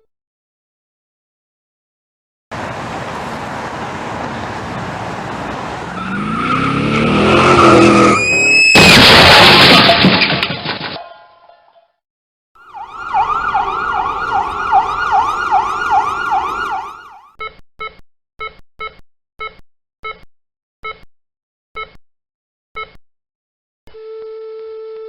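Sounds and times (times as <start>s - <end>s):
emergency siren yelping: 5.8s - 8.8s, 12.6s - 17.3s.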